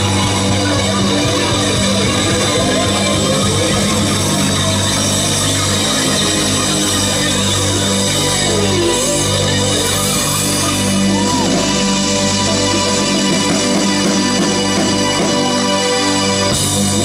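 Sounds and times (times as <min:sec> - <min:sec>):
audience shouts: 0:00.0 - 0:17.0
rock band holding a chord: 0:00.0 - 0:17.0.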